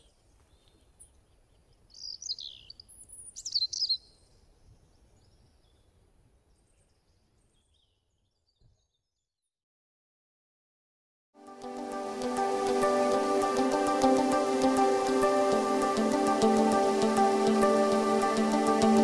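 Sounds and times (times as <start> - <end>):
birds chirping: 0.0 - 9.0
light background hiss: 11.8 - 19.0.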